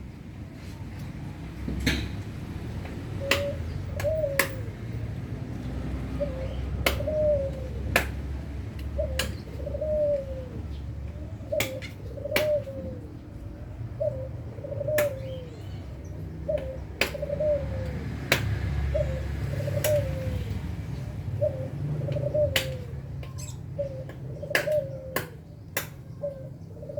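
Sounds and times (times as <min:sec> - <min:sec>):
bird cooing: 0:03.0 - 0:04.9, 0:06.0 - 0:18.2, 0:18.8 - 0:26.9.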